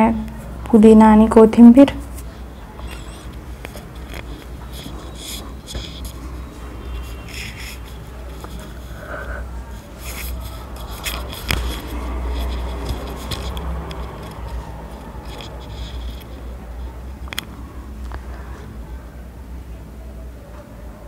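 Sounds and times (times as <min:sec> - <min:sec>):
utensil scraping in cooking pot: 0:02.0 - 0:17.0.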